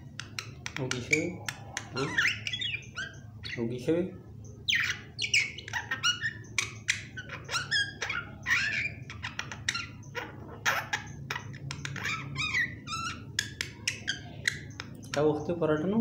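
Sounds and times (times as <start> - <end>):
myna squeaky calls and whistles: 0.2 - 3.7, 4.4 - 15.5.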